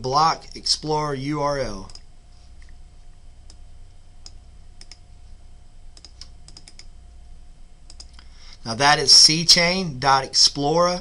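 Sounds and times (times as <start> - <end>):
faint low hum: 0.0 - 11.0
keyboard keys clicking: 6.0 - 6.9.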